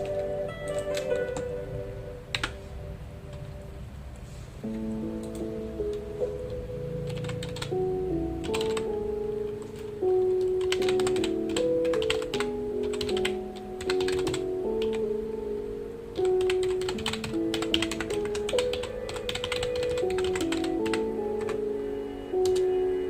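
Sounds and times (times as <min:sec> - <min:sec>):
typing on a computer keyboard: 0:00.0 - 0:01.5, 0:02.3 - 0:02.6, 0:07.1 - 0:07.8, 0:08.4 - 0:08.9, 0:09.6 - 0:15.0, 0:16.2 - 0:21.6
background music of held notes: 0:00.0 - 0:23.0.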